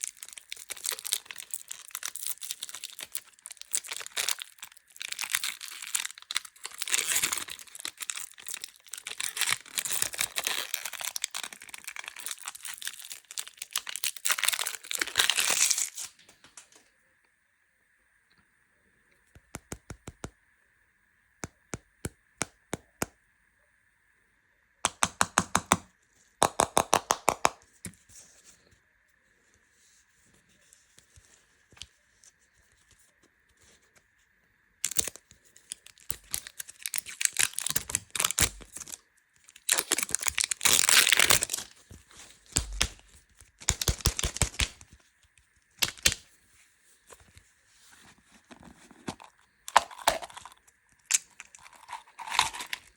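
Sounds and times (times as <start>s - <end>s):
plastic wrappers crinkling: 0.0s - 16.8s, 34.8s - 45.0s, 45.8s - 46.2s, 47.1s - 52.9s.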